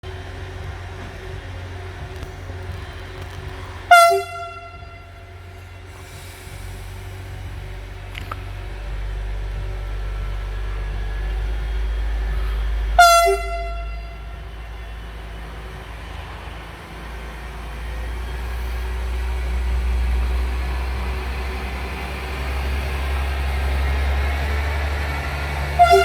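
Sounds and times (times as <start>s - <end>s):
low rumble: 0.0s - 26.0s
train air horn blast: 3.9s - 7.1s, 12.2s - 14.6s, 25.8s - 26.0s.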